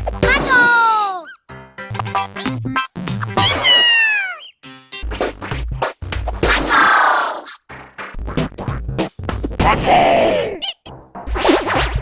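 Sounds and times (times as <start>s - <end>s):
high-pitched cartoon cry: 0.3s - 1.5s, 3.4s - 4.6s, 10.4s - 10.9s.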